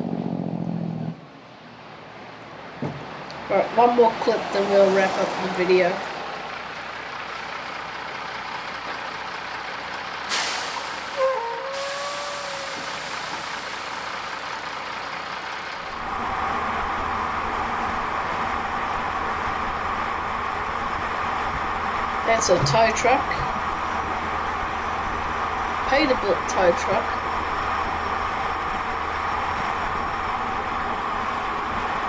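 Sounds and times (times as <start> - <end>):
heavy truck traffic: 0.0 - 32.0
truck engine approaching: 0.0 - 32.0
air release hiss: 10.3 - 14.9.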